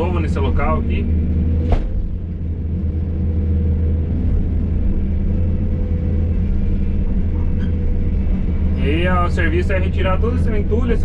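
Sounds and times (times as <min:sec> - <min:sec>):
excavator diesel engine rumbling: 0:00.0 - 0:11.0.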